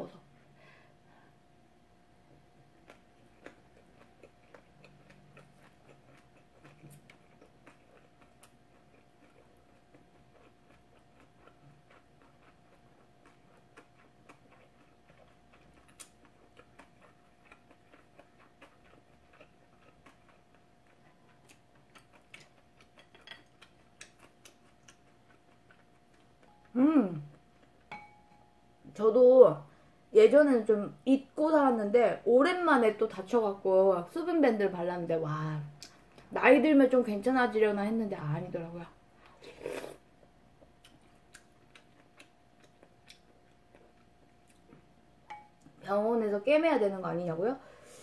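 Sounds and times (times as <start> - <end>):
faint steady hum: 0.0 - 48.0
chewing and mouth clicks: 2.8 - 27.9, 40.2 - 44.9.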